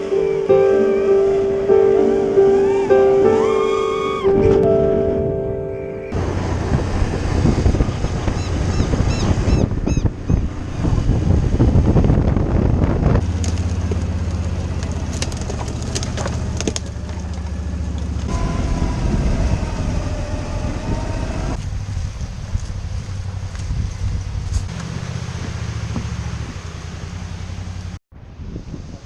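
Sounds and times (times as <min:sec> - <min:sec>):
wind buffeting microphone: 0:06.1 - 0:26.8, 0:28.1 - 0:29.0.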